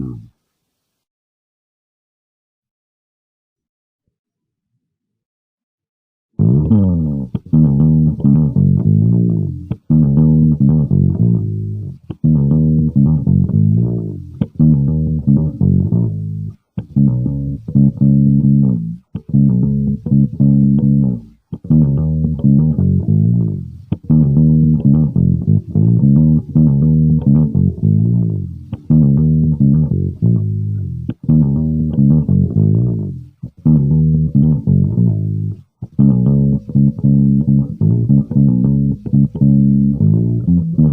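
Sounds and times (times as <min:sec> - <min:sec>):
electric bass guitar plucked: 0:00.0 - 0:00.3, 0:06.4 - 0:40.9.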